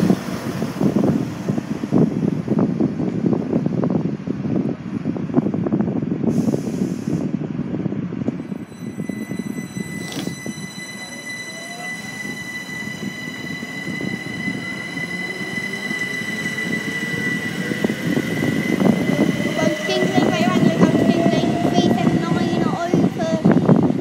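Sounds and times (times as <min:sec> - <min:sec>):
wheels rumbling on rails: 0:00.0 - 0:24.0
steady high whine: 0:08.3 - 0:24.0
motor whine rising in pitch: 0:09.0 - 0:21.7.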